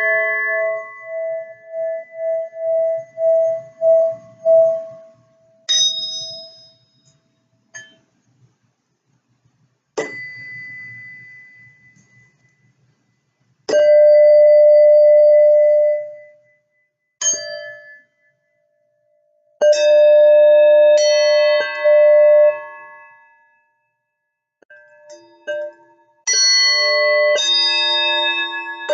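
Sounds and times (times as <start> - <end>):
struck bell-like tones: 0.0 - 8.4, 10.0 - 18.7.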